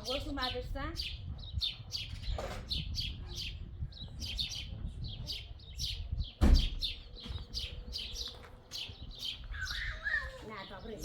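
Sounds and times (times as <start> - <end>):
small birds chirping: 0.0 - 11.0
loud thump: 6.4 - 6.8.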